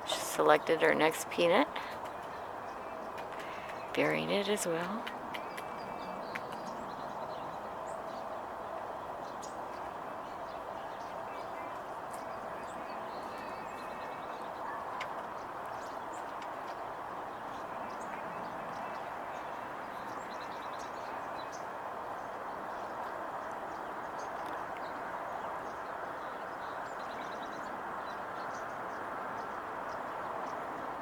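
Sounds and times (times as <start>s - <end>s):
outdoor background hum: 0.0s - 21.6s
distant songbirds chirping: 0.0s - 31.0s.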